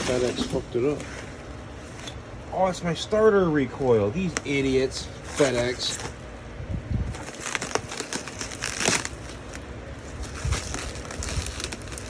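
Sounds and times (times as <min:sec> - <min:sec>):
plastic packing crinkling: 0:00.0 - 0:01.1, 0:04.3 - 0:06.2, 0:07.0 - 0:12.0.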